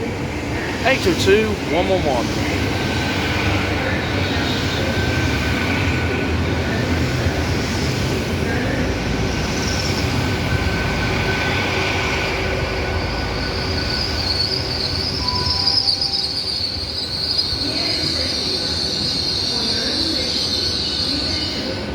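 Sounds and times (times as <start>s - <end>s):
high-pitched train squeal: 12.5s - 21.9s.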